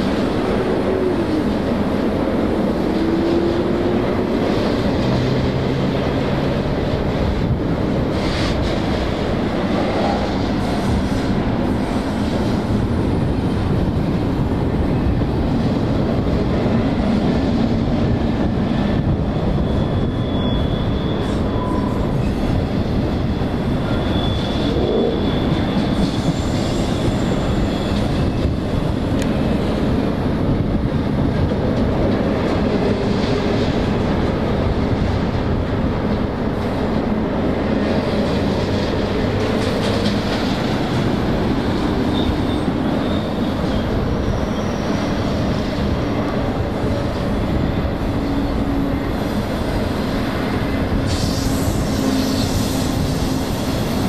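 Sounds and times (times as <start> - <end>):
freight train rolling past: 0.0 - 54.0
high wheel squeal: 19.3 - 28.8, 40.4 - 45.8, 47.6 - 54.0.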